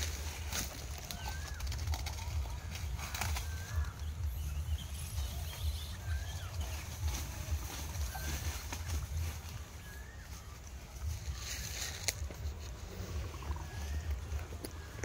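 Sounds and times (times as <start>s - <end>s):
footsteps on dry leaves: 0.0s - 15.0s
low rumble: 0.0s - 15.0s
bird whistling: 1.0s - 11.8s.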